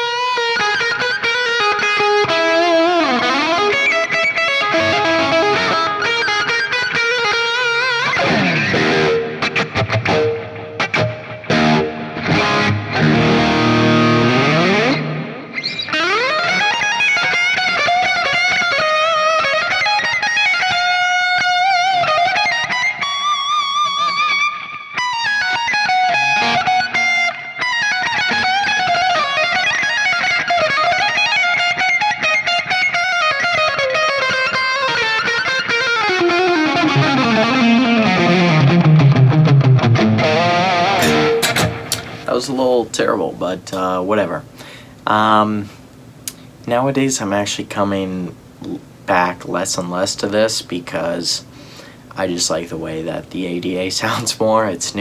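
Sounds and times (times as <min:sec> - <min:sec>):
distorted electric guitar lead: 0:00.0 - 0:35.0.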